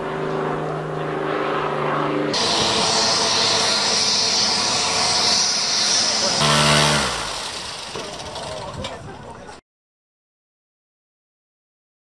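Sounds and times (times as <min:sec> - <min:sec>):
aircraft engine running: 0:00.0 - 0:09.6.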